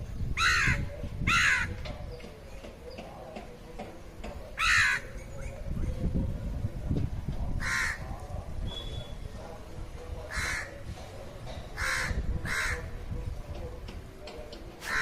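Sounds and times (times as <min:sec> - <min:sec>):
crow cawing: 0:04.6 - 0:05.1, 0:07.6 - 0:08.0, 0:10.3 - 0:10.8, 0:11.8 - 0:12.9.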